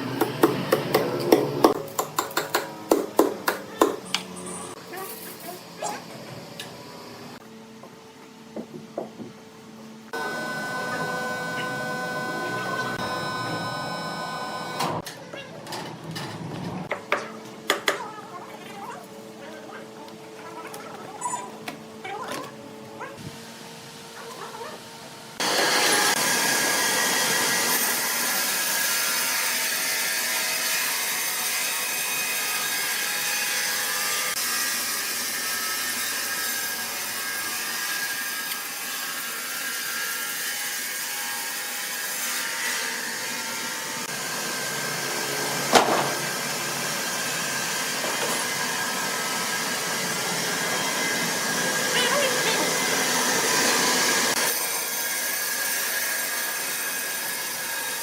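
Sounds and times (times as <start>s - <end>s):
saw whirring through wood: 10.1s - 15.0s, 25.3s - 58.0s.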